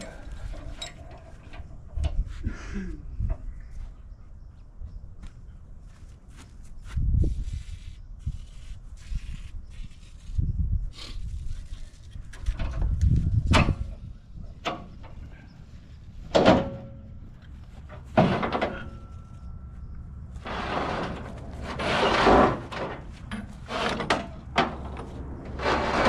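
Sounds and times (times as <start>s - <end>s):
metal clanks and scrapes: 17.9s - 19.5s, 20.4s - 26.0s.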